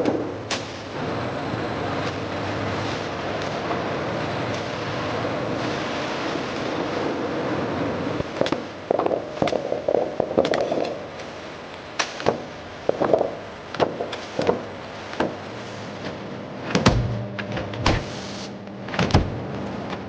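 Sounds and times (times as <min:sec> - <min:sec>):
steady mechanical noise: 0:00.0 - 0:20.0
low hum: 0:15.6 - 0:19.8.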